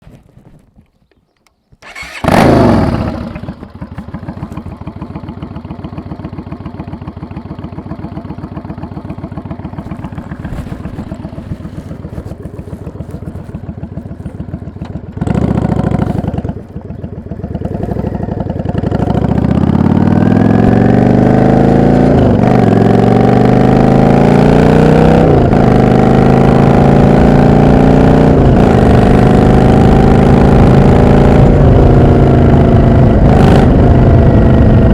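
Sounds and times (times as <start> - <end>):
motorcycle engine idling: 1.2 - 20.7
motorcycle engine starting: 1.5 - 34.9
motorcycle accelerating through gears: 1.8 - 34.9
motorcycle engine revving: 1.8 - 34.9.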